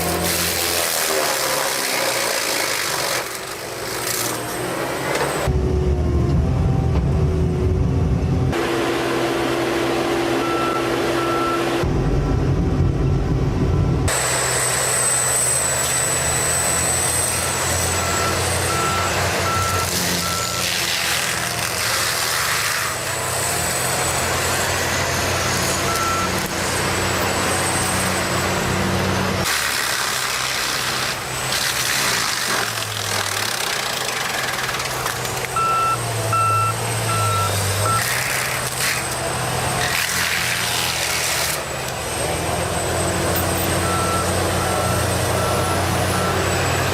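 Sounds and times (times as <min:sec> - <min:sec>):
heavy machinery engine running: 0:00.0 - 0:46.9
back-up alarm beeping: 0:10.4 - 0:11.7, 0:35.6 - 0:38.0.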